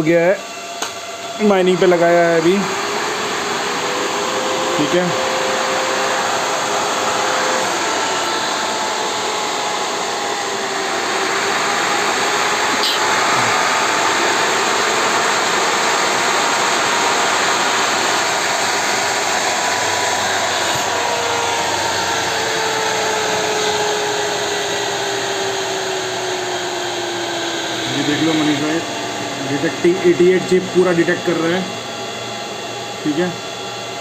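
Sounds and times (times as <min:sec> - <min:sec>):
cooling fans whirring: 0:00.0 - 0:34.0.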